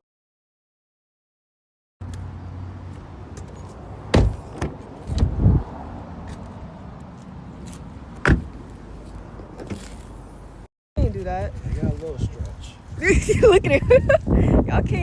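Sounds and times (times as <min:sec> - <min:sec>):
sharp knocks and clunks: 0:03.4 - 0:05.4, 0:08.2 - 0:08.6.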